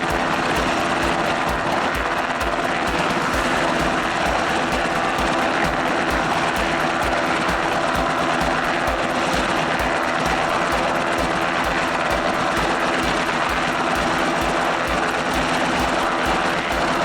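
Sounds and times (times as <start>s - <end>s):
helicopter rotor beat: 0.0s - 17.0s
helicopter turbine drone: 0.0s - 17.0s.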